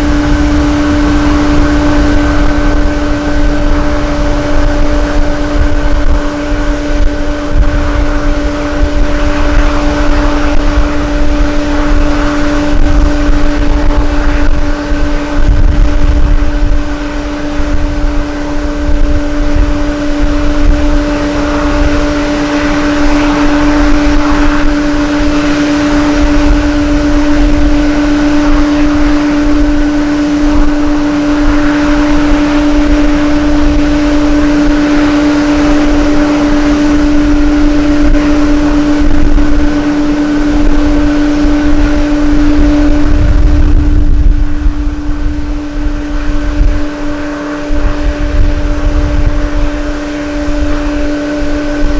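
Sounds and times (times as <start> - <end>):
steady mechanical drone: 0.0 - 51.9
wind buffeting microphone: 0.0 - 51.9.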